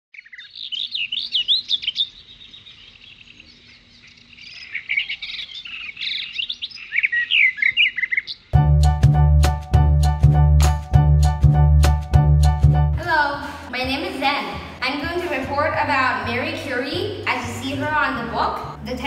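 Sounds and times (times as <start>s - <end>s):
small birds chirping: 0.1s - 8.6s.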